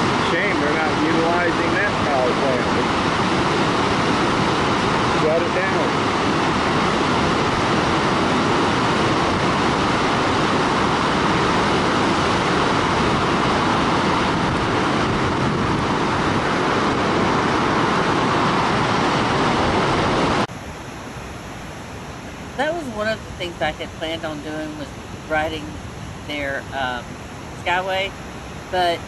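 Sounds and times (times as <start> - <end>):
waterfall roaring: 0.0 - 29.0.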